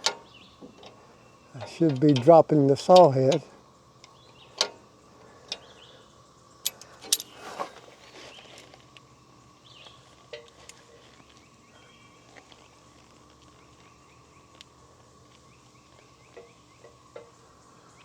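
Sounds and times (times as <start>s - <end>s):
wrench clicking on metal: 6.6s - 7.4s.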